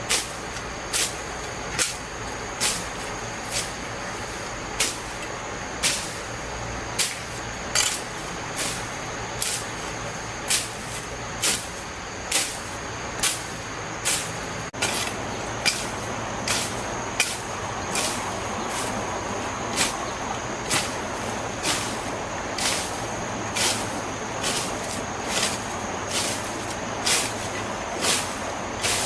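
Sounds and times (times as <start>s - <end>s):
steady hiss: 0.0s - 29.0s
broom sweeping: 2.6s - 5.2s, 8.6s - 29.0s.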